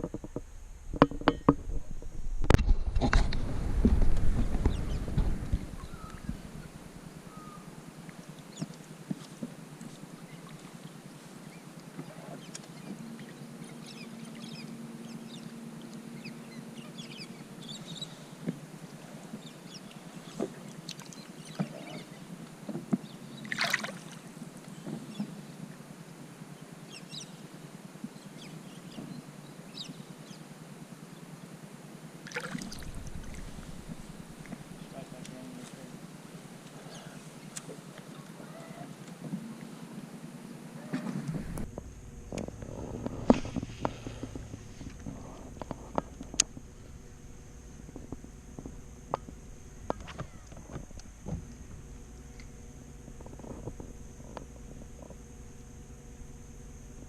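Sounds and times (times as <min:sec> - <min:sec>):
faint low hum: 0:00.0 - 0:57.0
water lapping against boat hull: 0:17.0 - 0:25.8, 0:32.2 - 0:40.0.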